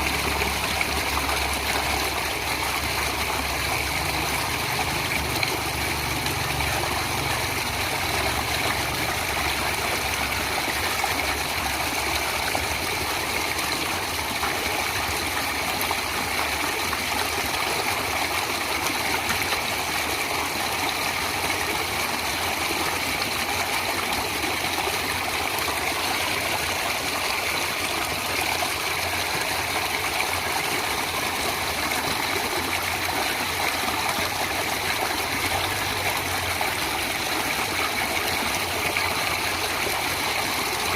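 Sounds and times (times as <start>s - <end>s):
stream water trickling: 0.0s - 40.9s.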